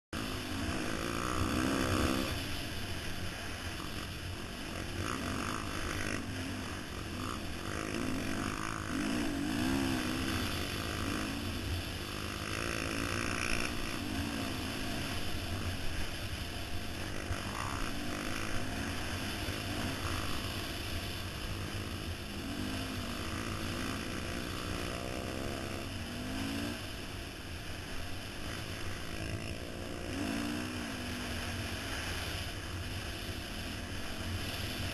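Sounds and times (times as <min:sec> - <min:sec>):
dirt bike engine revving: 0:00.2 - 0:34.9.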